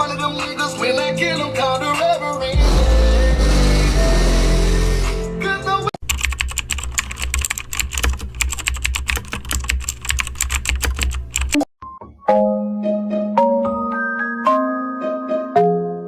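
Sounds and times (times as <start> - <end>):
computer keyboard typing: 6.0 - 11.7.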